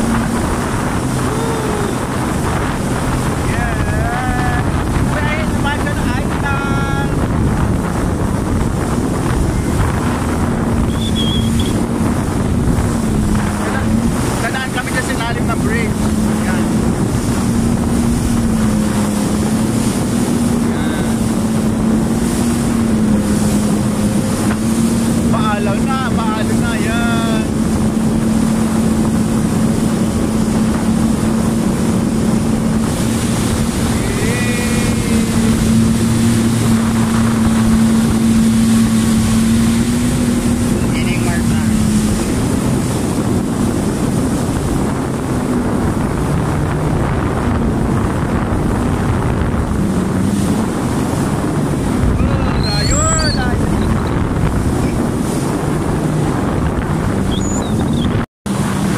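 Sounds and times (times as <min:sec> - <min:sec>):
jet ski engine running: 0:00.0 - 0:58.9
water rushing: 0:00.0 - 0:58.9
wind buffeting on microphone: 0:00.0 - 0:58.9.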